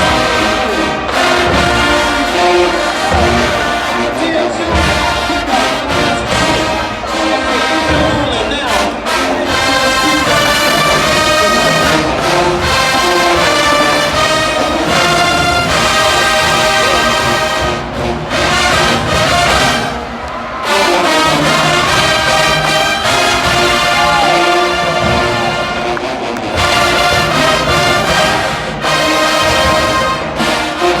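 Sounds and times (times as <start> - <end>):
drums: 0.0 - 31.0
marching band brass chords: 0.0 - 31.0.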